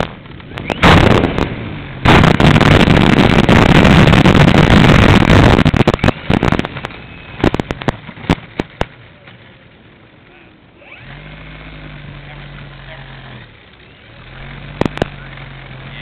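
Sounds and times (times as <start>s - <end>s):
wind buffeting microphone: 0.0s - 9.0s
clicks and pops: 0.0s - 9.4s, 14.8s - 15.2s
propeller plane engine roar: 0.0s - 16.0s.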